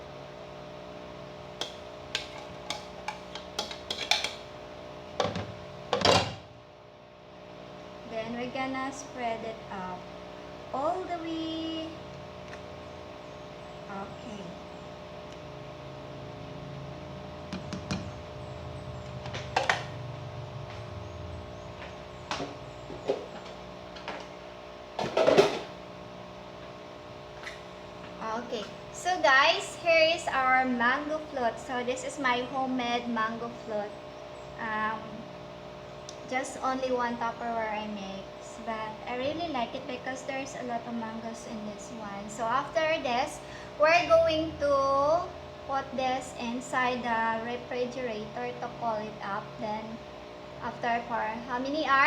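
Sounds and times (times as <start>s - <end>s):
steady low hum: 0.0s - 52.0s
utensil clatter: 1.6s - 4.4s
utensil tapping a bowl: 17.5s - 18.2s.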